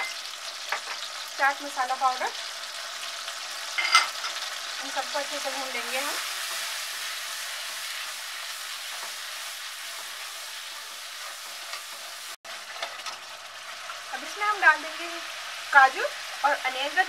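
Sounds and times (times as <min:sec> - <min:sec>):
sauce sizzling in a pan: 0:00.0 - 0:17.0.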